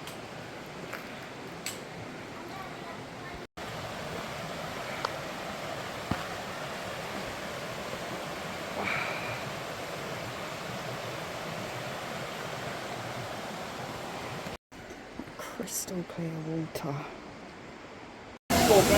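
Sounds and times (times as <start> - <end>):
stream running over rocks: 0.0 - 14.6, 18.5 - 18.9.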